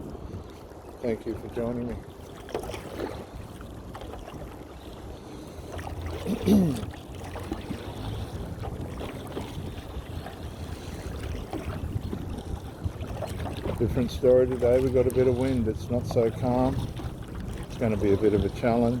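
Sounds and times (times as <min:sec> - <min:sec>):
wind buffeting microphone: 0:00.0 - 0:02.0, 0:07.7 - 0:19.0
paddle splashing in water: 0:00.0 - 0:19.0.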